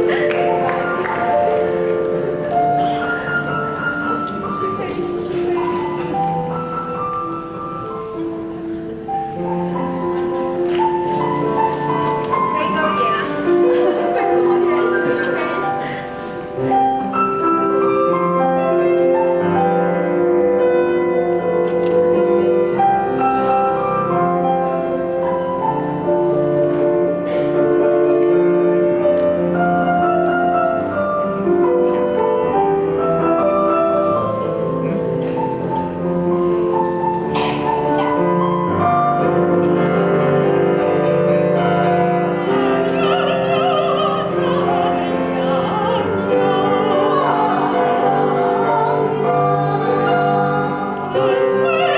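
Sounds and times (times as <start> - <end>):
piano accompaniment: 0.0 - 51.9
person singing: 42.7 - 51.9
higher voice singing with vibrato: 42.8 - 51.9.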